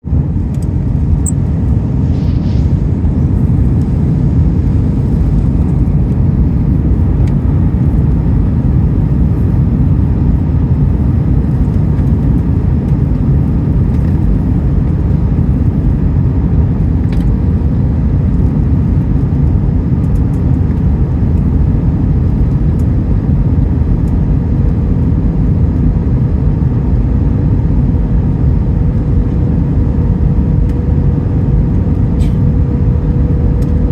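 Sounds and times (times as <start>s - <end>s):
airplane cabin rumble in flight: 0.0s - 33.9s.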